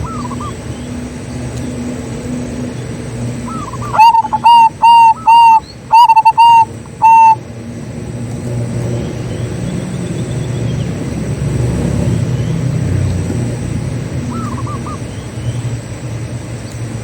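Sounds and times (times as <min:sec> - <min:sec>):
dove cooing: 0:00.0 - 0:00.7, 0:03.4 - 0:07.4, 0:14.3 - 0:15.1
faint bird chirps: 0:03.4 - 0:07.4, 0:14.3 - 0:15.7.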